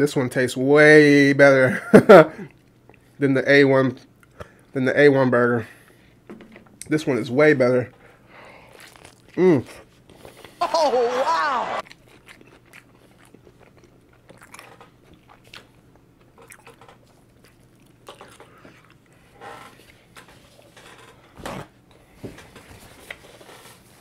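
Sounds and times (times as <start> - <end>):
burger chewing: 8.3 - 20.7.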